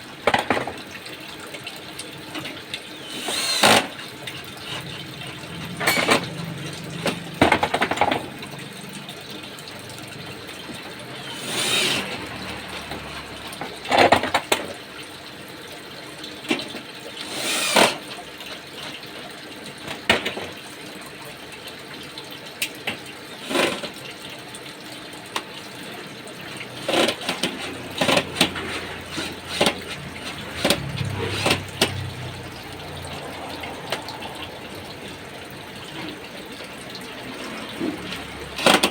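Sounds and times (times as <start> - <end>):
tools knocking and clattering: 5.6 - 8.4, 26.9 - 32.4.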